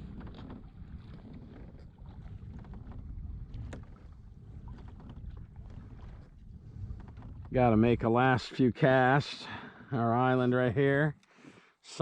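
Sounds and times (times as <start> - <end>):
light water splashes: 0.0 - 7.6
water knocking against hull: 0.0 - 8.0
wind rumble on microphone: 0.0 - 8.2.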